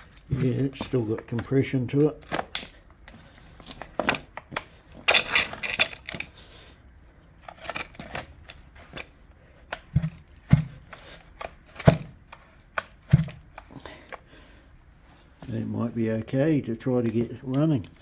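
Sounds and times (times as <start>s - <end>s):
metal parts rattling clatter: 0.0s - 6.4s, 7.4s - 9.1s, 9.8s - 14.2s.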